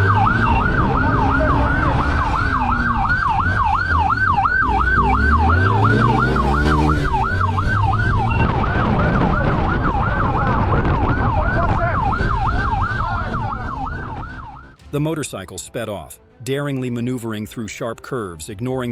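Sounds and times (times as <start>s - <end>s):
police siren yelping: 0.0s - 14.8s
vehicle engine revving: 0.0s - 14.8s
road noise: 0.0s - 18.9s.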